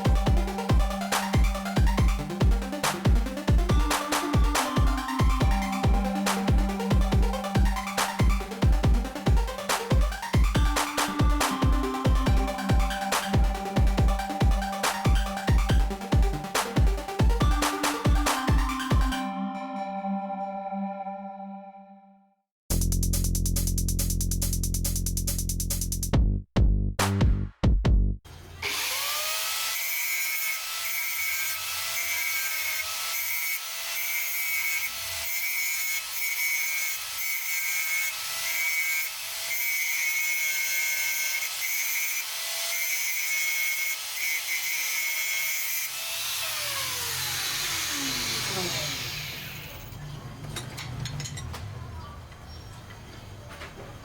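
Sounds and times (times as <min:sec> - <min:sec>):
power tool whining: 0:28.4 - 0:50.0.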